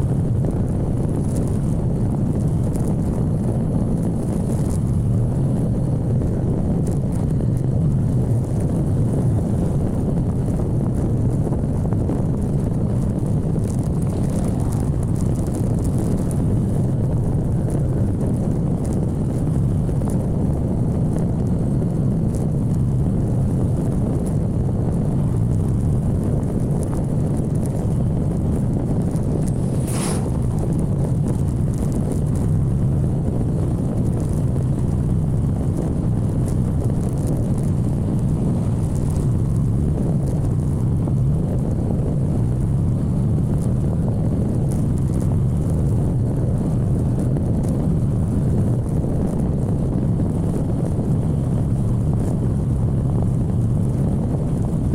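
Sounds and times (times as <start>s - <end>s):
motorcycle engine rumble: 0.0s - 54.9s
wind noise: 0.0s - 54.9s
brief high hiss: 29.7s - 30.4s.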